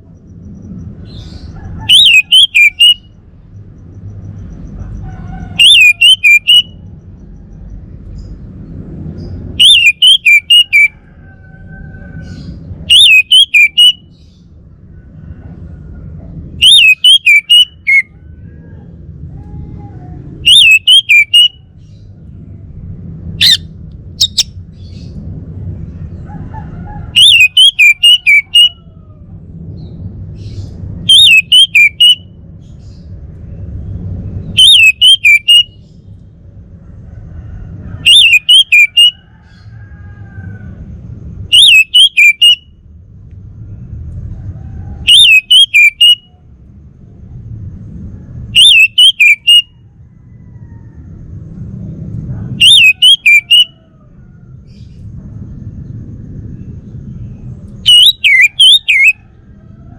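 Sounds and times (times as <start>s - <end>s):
thrush singing whistled phrases: 1.9s - 3.1s, 5.6s - 6.8s, 9.6s - 10.9s, 12.9s - 14.1s, 16.6s - 18.1s, 20.4s - 21.6s, 27.2s - 28.8s, 31.1s - 32.3s, 34.5s - 35.8s, 38.0s - 39.2s, 41.5s - 42.8s, 45.1s - 46.3s, 48.6s - 49.7s, 52.6s - 53.8s, 57.8s - 59.2s
low rumble: 6.7s - 17.0s, 17.6s - 38.4s, 39.2s - 42.0s, 42.6s - 45.4s, 46.2s - 53.0s, 53.7s - 58.6s.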